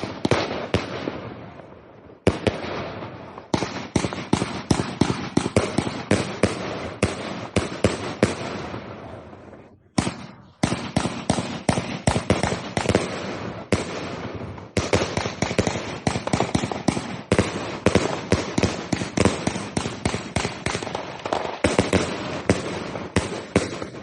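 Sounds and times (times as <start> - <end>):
fireworks loud bangs: 0.0 - 24.0.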